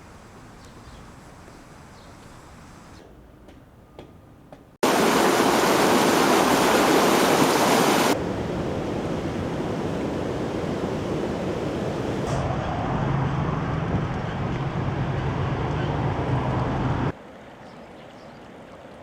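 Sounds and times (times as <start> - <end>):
rushing floodwater: 4.8 - 12.3.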